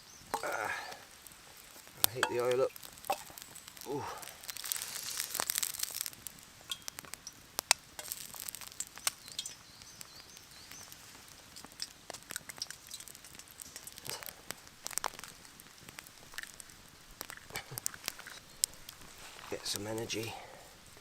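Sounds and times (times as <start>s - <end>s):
hot oil sizzling and popping: 0.0s - 21.0s.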